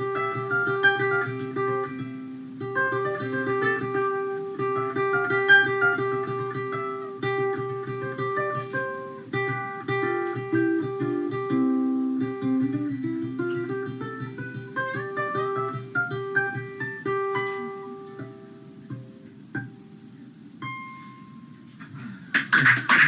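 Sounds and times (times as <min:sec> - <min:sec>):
ukulele playing: 0:00.0 - 0:20.0, 0:20.6 - 0:21.8.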